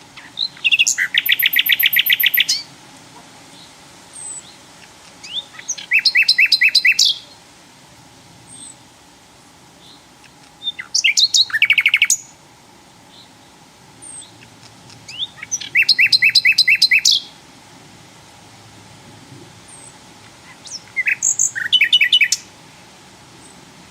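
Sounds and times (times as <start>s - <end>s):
faint high bird chips: 0.1s - 2.7s
flycatcher whistled song: 0.2s - 2.7s, 5.2s - 7.4s, 10.6s - 12.4s, 15.1s - 17.3s, 20.6s - 22.5s.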